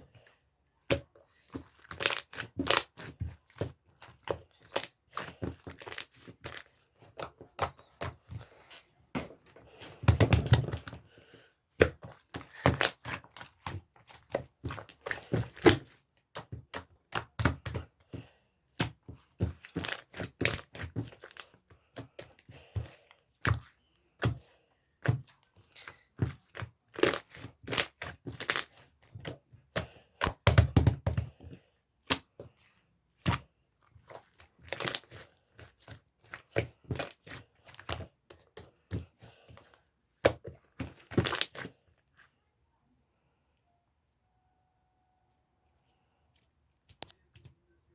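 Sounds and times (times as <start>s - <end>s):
sticky slime popping: 0.8s - 8.2s, 10.0s - 11.0s, 11.8s - 18.0s, 18.7s - 24.4s, 26.1s - 31.3s, 40.2s - 41.7s.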